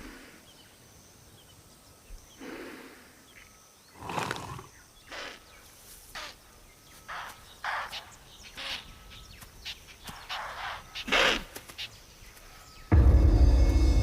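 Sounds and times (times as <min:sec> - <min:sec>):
rough breathy animal sounds: 0:02.3 - 0:05.6.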